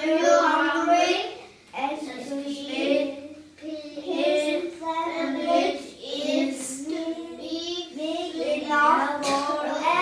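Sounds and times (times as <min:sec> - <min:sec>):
child singing: 0:02.1 - 0:10.0.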